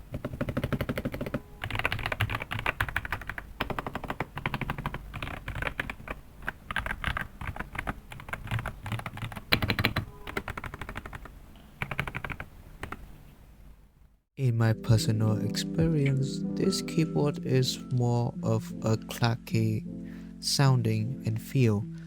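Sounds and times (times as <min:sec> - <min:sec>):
mechanical keyboard typing: 0:00.0 - 0:13.1.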